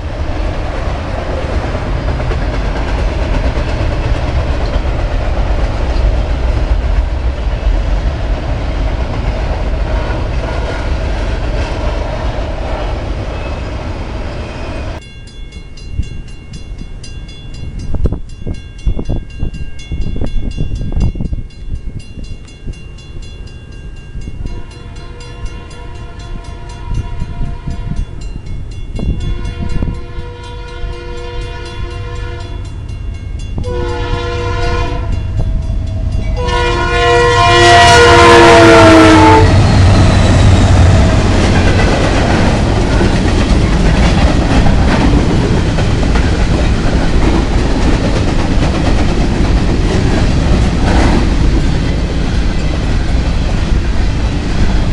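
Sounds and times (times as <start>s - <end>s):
train rumbling by: 0.0s - 54.9s
diesel locomotive horn blasts: 24.4s - 28.2s, 29.2s - 32.7s, 33.6s - 41.3s.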